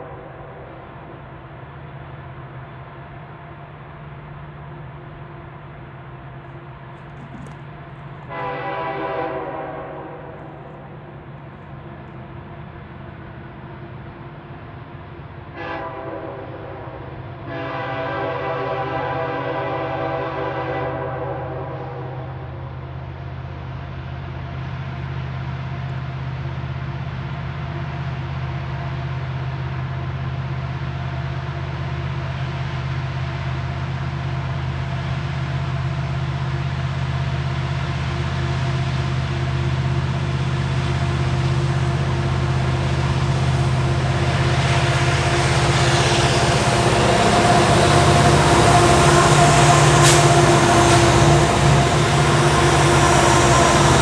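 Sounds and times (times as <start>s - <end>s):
diesel locomotive engine drone: 0.0s - 54.0s
short sharp sound: 48.4s - 52.4s.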